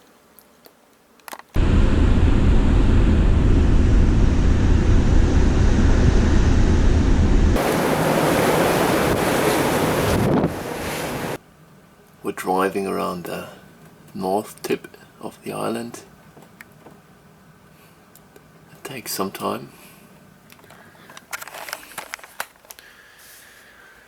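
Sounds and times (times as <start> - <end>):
wind buffeting microphone: 1.6 - 11.4.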